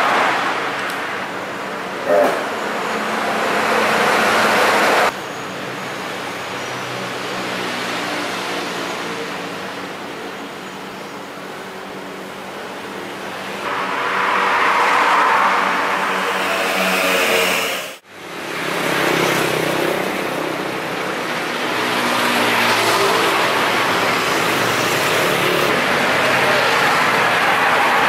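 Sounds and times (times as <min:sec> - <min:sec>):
low hum: 0:13.6 - 0:18.0.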